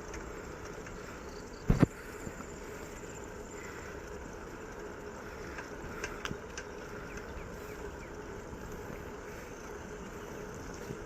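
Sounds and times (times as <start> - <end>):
bicycle rolling: 0.0 - 11.0
faint clicks: 5.4 - 7.6.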